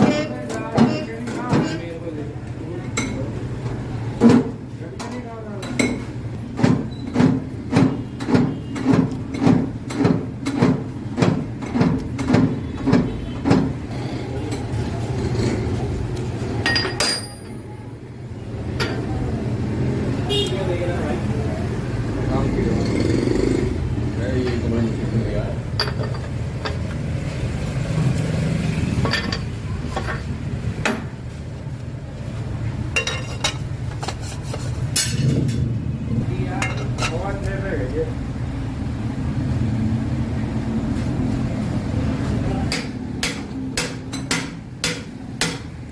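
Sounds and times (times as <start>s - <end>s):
workshop hum: 0.0s - 45.9s
metal tools clinking: 16.6s - 17.6s
hammer striking metal: 42.7s - 45.8s.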